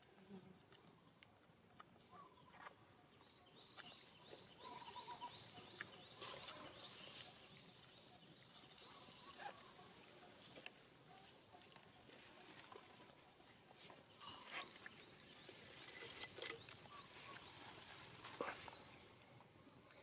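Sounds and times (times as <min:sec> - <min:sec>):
faint bird calls: 0:02.1 - 0:13.2.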